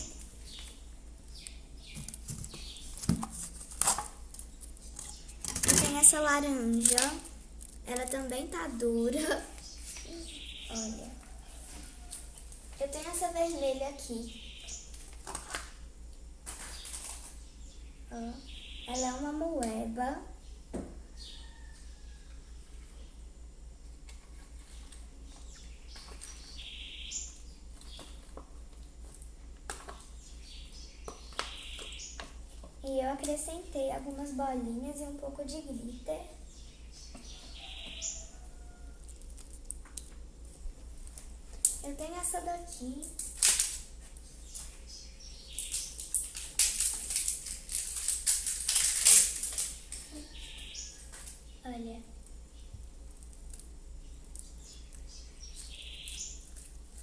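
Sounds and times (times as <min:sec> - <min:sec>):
chirp-like call: 0:36.6 - 0:38.9
slime crackling and popping: 0:45.5 - 0:50.0.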